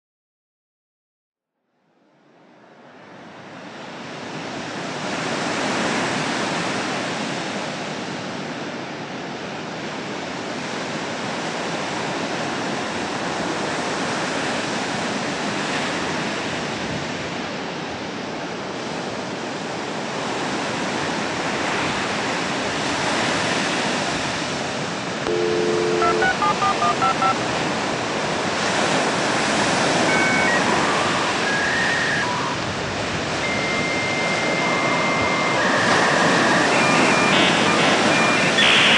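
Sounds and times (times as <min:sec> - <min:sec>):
electronic tones: 0:25.3 - 0:27.4, 0:29.8 - 0:32.7, 0:33.3 - 0:38.9
short electronic beeps: 0:25.3 - 0:27.4, 0:30.0 - 0:32.6, 0:33.4 - 0:38.9.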